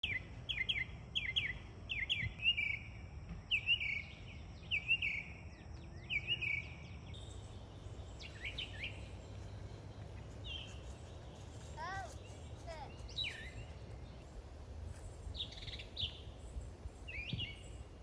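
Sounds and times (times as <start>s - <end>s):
songbird chirping: 0.0s - 18.0s.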